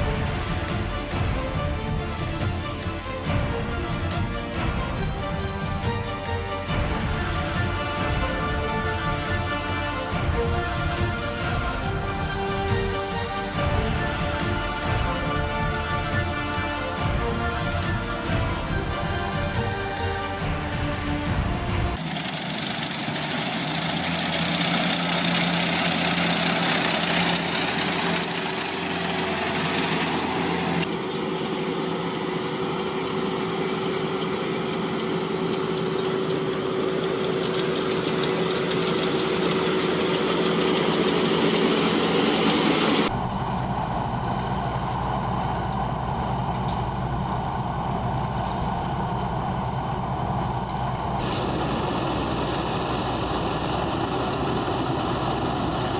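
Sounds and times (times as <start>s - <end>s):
heavy engine running: 0.0s - 55.9s
steady whine: 13.2s - 55.9s.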